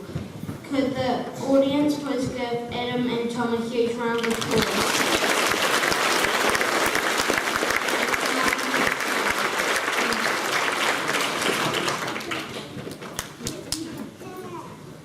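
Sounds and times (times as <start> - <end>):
audience applauding: 4.2 - 13.8.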